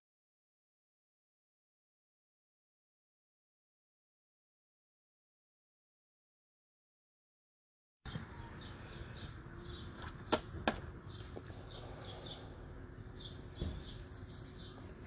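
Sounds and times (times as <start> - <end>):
small bird chirping: 8.1 - 15.0.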